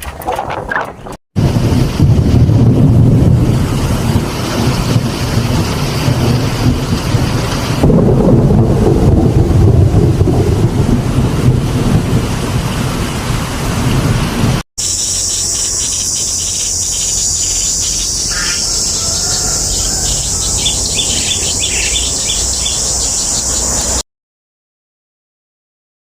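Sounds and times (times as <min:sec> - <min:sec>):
storm wind and rain: 0:00.0 - 0:14.9, 0:16.8 - 0:24.0
insect chirps: 0:14.8 - 0:24.0
insect chorus: 0:14.8 - 0:24.0.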